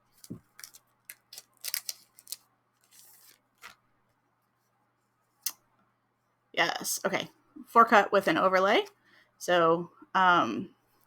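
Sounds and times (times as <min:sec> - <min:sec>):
packaging crackling: 0:00.1 - 0:03.8
packaging clicks: 0:00.2 - 0:03.8.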